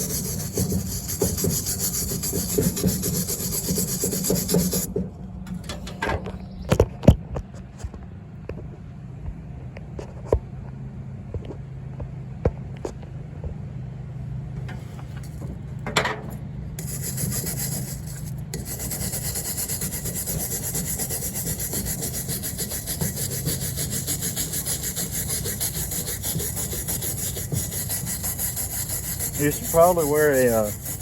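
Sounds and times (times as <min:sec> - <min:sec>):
scraping on a coconut shell: 0:00.0 - 0:04.9, 0:14.6 - 0:15.6, 0:16.8 - 0:31.0.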